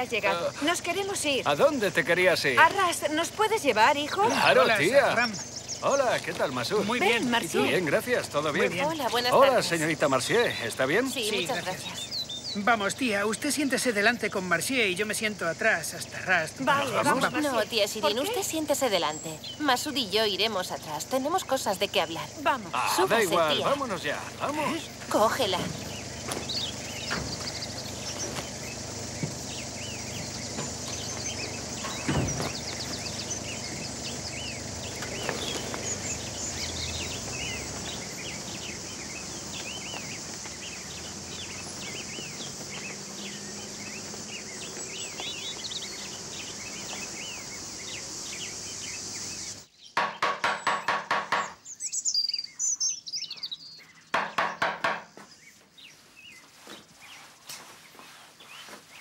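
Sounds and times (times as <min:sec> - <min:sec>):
steady high hiss: 0:00.0 - 0:49.8
birds chirping: 0:00.0 - 0:59.0
single thump: 0:31.8 - 0:32.6.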